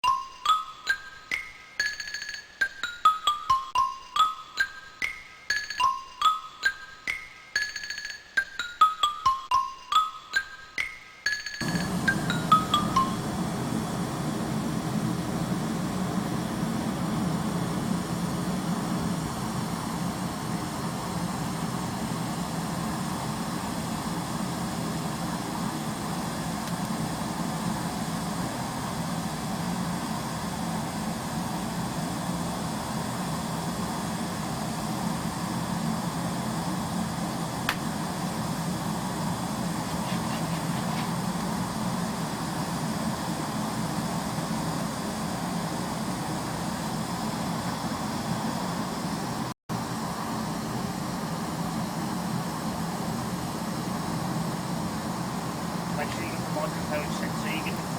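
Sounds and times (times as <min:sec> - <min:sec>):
fire burning with rushing drone: 0:11.6 - 0:57.9.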